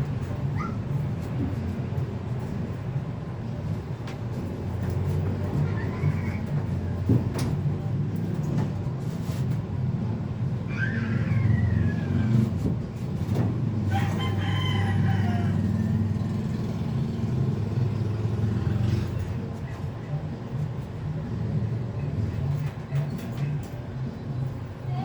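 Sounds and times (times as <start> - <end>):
rooster crowing: 13.9 - 16.2.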